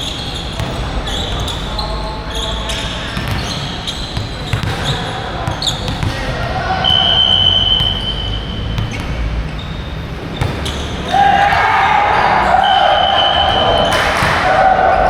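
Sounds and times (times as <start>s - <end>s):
players and spectators shouting: 0.0s - 8.8s, 10.3s - 15.0s
sneakers squeaking on floor: 0.0s - 15.0s
volleyball impacts: 3.0s - 9.4s, 10.3s - 15.0s.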